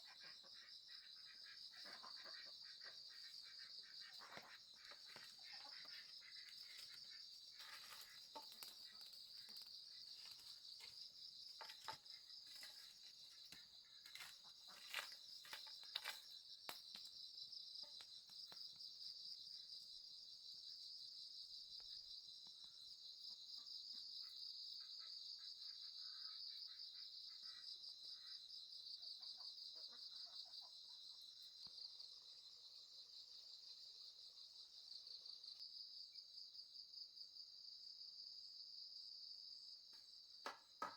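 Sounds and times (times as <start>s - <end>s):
insect chorus chirring: 0.0s - 40.6s.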